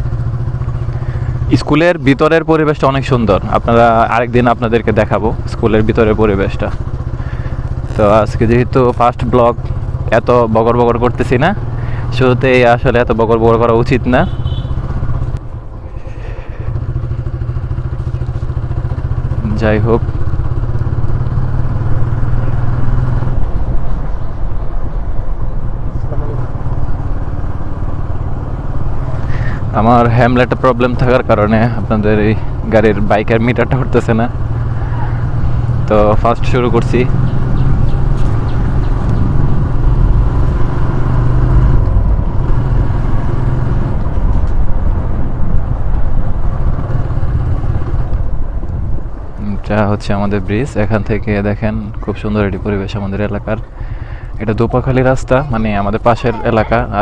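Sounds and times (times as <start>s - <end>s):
motorcycle engine: 0.0s - 57.0s
wind rumble on microphone: 41.6s - 49.6s.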